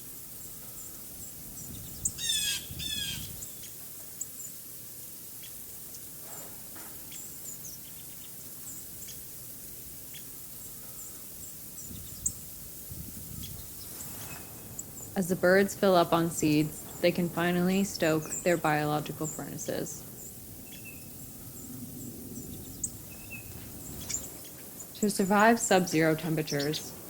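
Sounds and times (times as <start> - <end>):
faint songbird chips: 0.0 - 27.0
blue jay harsh calls: 0.6 - 4.5, 13.4 - 27.0.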